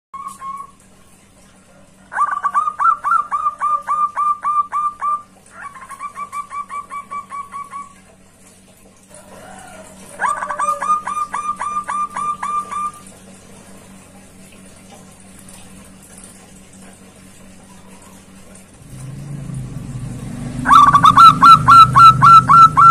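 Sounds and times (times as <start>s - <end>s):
dove cooing: 2.0s - 8.1s, 9.2s - 13.2s, 20.6s - 22.9s.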